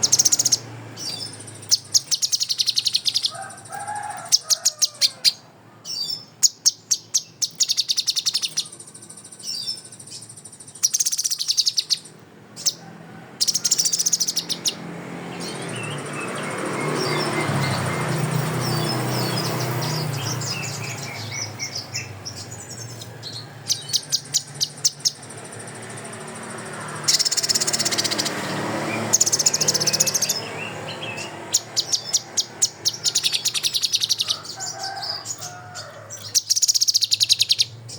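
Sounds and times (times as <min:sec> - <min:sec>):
songbird trills and whistles: 0:00.0 - 0:12.8, 0:13.4 - 0:14.8, 0:15.4 - 0:25.4, 0:27.1 - 0:37.8.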